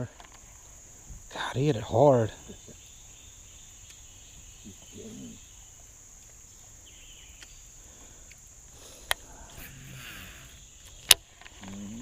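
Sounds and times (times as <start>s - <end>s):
crickets chirping: 0.0s - 12.0s
sharp clicks: 10.8s - 11.8s.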